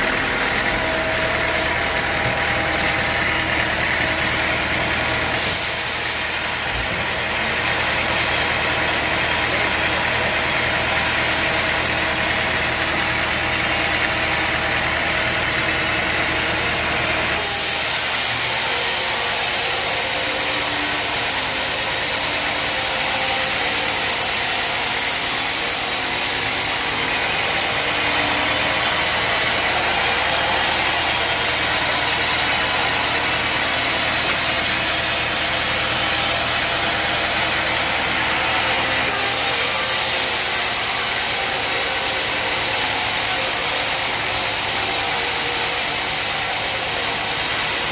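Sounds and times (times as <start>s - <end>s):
sawmill machinery humming: 0.0s - 47.9s
machinery hiss: 5.2s - 6.7s, 17.4s - 35.2s, 38.2s - 47.9s.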